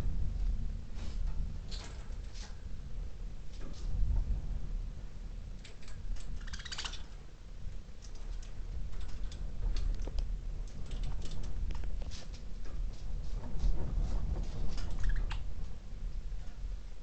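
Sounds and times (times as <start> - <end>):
steady low rumble: 0.0 - 17.0
budgerigars clicking: 6.3 - 7.1, 15.0 - 15.4
budgerigar chirping chatter: 6.4 - 7.0, 15.0 - 15.3.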